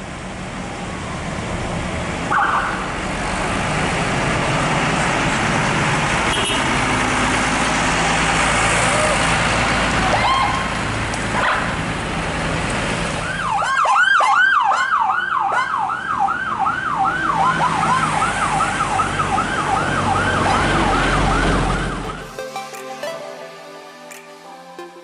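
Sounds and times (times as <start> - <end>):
low traffic rumble: 0.0 - 22.1
siren yelping: 13.4 - 22.4.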